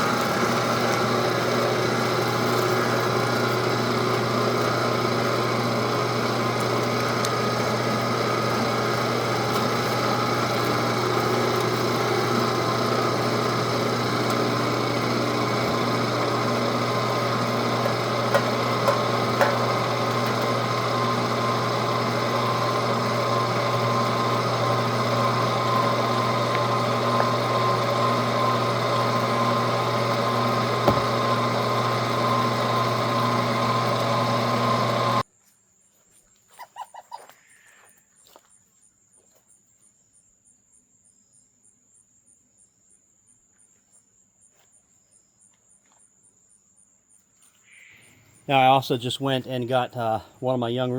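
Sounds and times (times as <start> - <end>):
meat grinder motor hum: 0.0 - 35.2.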